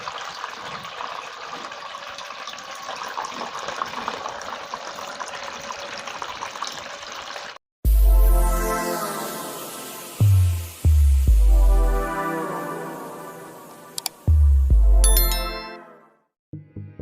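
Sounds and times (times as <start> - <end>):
water splashing in small fountain: 0.0 - 7.6.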